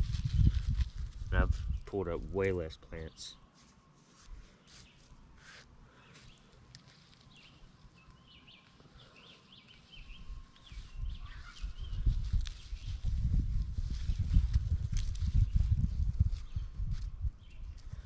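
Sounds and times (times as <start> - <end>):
hands digging through soil: 0.0 - 8.0, 10.6 - 15.4
birds chirping: 5.8 - 13.0.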